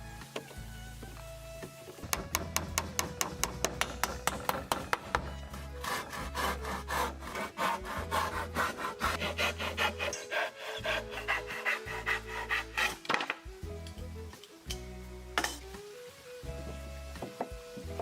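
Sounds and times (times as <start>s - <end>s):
hand tool scraping wood: 2.1s - 13.4s.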